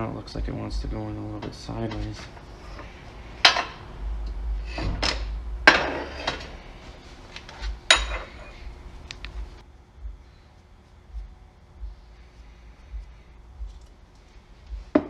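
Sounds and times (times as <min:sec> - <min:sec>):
tools clanking on metal: 0:01.9 - 0:03.8, 0:04.7 - 0:06.6, 0:07.4 - 0:08.6.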